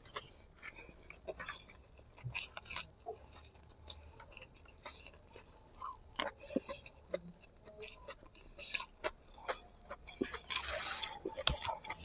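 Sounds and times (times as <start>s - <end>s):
wet chewing mouth sounds: 0.0s - 12.0s.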